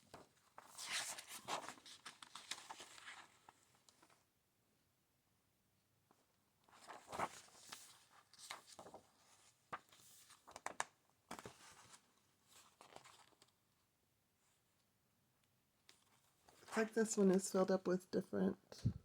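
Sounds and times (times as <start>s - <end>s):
paper pages rustling: 0.1s - 4.2s, 6.7s - 13.6s.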